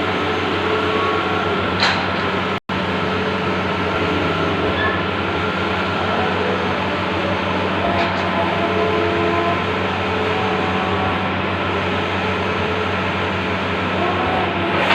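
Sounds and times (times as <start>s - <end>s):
printer mechanical hum and hiss: 0.0s - 14.9s.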